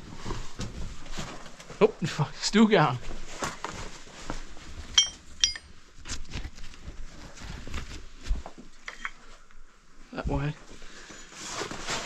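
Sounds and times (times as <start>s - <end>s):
shuffling and handling noise: 0.0s - 12.0s
sharp metallic clinks: 5.0s - 5.7s.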